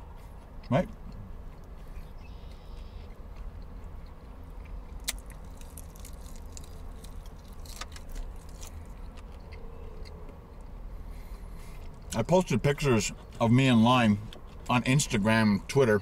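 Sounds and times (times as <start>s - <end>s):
man chewing fried chicken: 0.0s - 12.2s, 14.2s - 14.9s
short crackles and mouth clicks: 4.9s - 9.4s.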